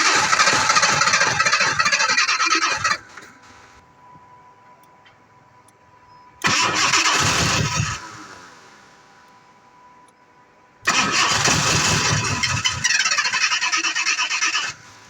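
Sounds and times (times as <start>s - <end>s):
car engine cranking without starting: 0.0s - 3.5s, 6.4s - 8.6s, 10.9s - 15.0s.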